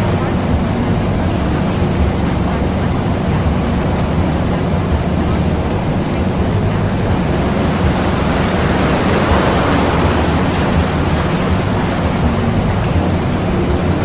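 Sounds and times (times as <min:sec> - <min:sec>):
rushing water and wind: 0:00.0 - 0:14.0.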